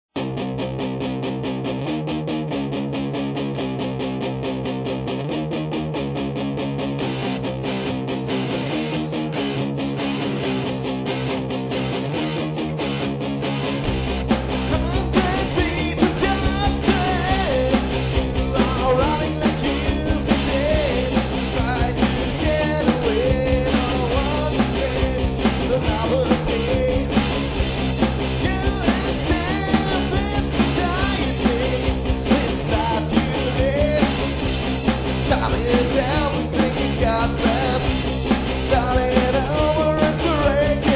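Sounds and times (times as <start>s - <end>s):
bass guitar: 0.1s - 40.9s
electric rhythm guitars: 0.1s - 40.9s
steady drum beat: 13.8s - 40.9s.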